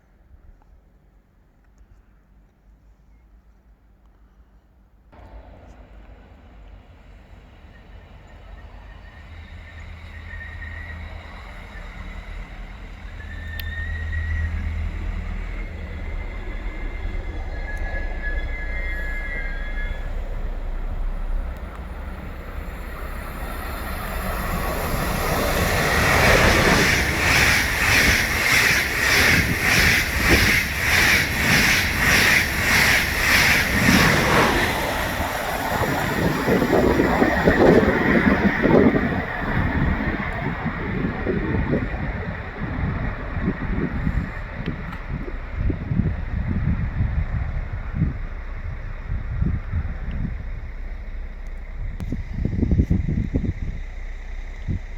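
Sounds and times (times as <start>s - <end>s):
train rumbling past: 4.5s - 54.9s
wheels squealing on rail: 7.6s - 48.9s.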